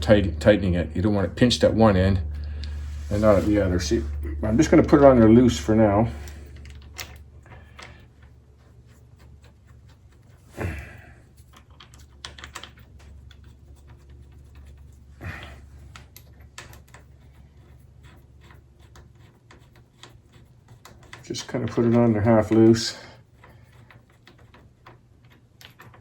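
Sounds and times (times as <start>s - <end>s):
steady low hum: 0.0s - 24.8s
small metal clicks and taps: 23.4s - 26.0s.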